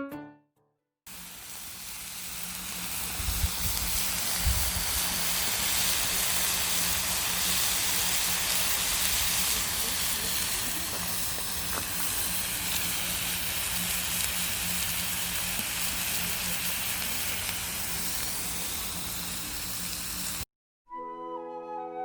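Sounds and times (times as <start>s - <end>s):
flute music: 0.0s - 0.5s, 20.9s - 22.0s
meat sizzling on a griddle: 1.1s - 20.4s.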